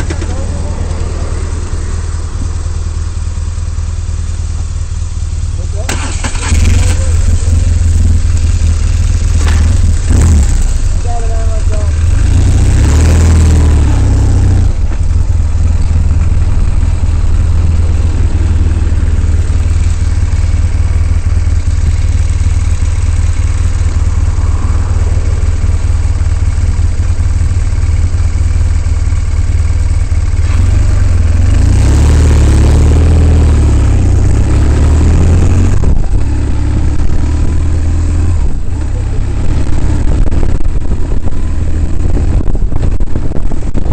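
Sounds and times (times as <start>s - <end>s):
motorcycle engine running: 0.0s - 43.9s
rushing noise: 11.9s - 28.4s.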